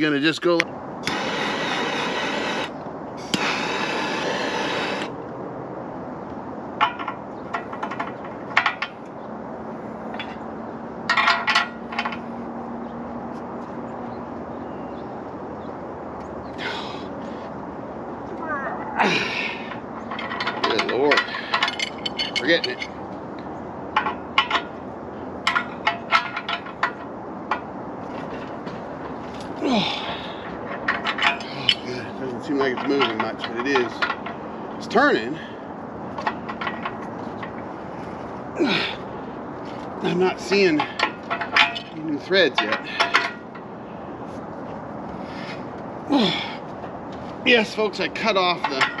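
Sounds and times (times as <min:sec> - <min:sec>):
steady hisses: 0:01.0 - 0:05.2
hand tools clinking on metal: 0:11.1 - 0:12.2, 0:19.3 - 0:23.0, 0:25.4 - 0:27.6, 0:29.7 - 0:35.6, 0:36.2 - 0:37.6, 0:40.0 - 0:43.7, 0:47.5 - 0:49.0
wrench clinking on metal: 0:20.1 - 0:23.0, 0:40.8 - 0:43.6.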